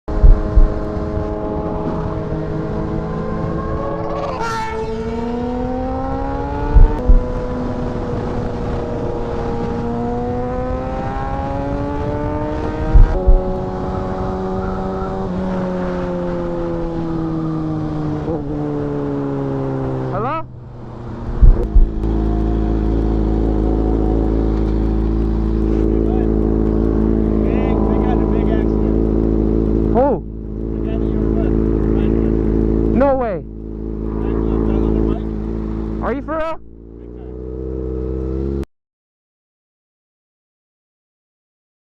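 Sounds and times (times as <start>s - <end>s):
loud low thumps: 0.1s - 0.8s, 6.7s - 7.4s, 12.9s - 13.6s, 21.3s - 24.8s
motorcycle engine changing pitch: 0.1s - 38.7s.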